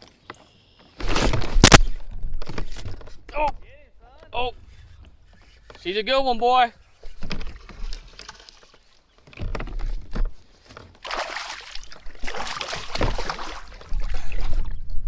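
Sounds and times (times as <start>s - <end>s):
water splashing: 11.0s - 14.6s.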